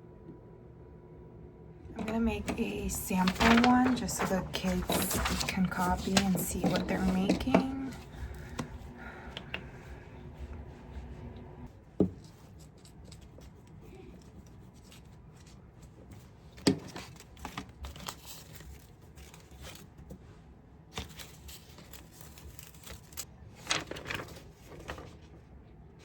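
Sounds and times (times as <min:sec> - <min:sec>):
tissue paper tearing and crinkling: 0:02.0 - 0:08.3, 0:21.0 - 0:24.9.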